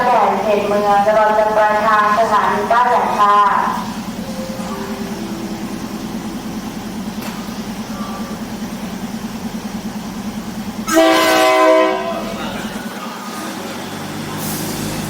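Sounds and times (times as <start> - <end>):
diesel train engine idling: 0.0 - 15.0
train horn blast: 10.8 - 12.4.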